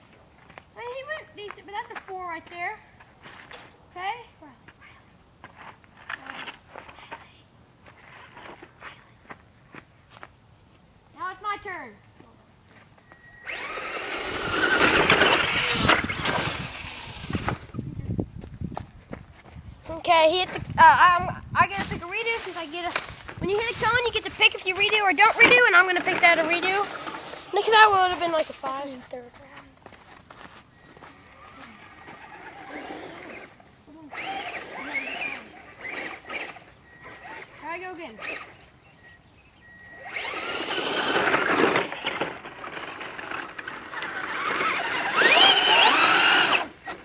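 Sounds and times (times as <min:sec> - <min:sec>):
electric rc truck motor whining: 0:13.2 - 0:17.8, 0:25.5 - 0:27.7, 0:31.2 - 0:47.0.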